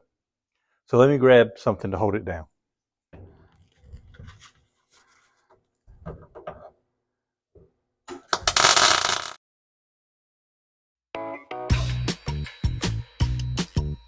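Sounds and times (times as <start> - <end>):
welder crackling: 8.4 - 9.4.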